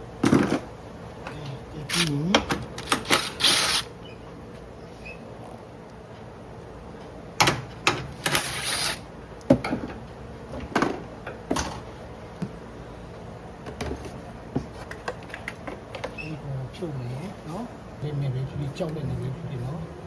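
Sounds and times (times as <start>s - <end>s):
rasping scrape: 3.1s - 3.9s, 8.2s - 9.0s.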